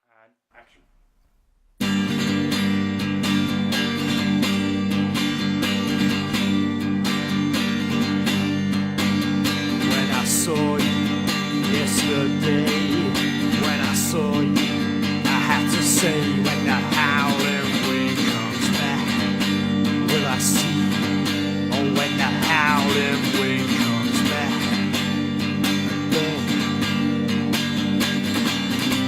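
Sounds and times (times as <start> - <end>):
acoustic guitar strumming: 1.8 - 29.0.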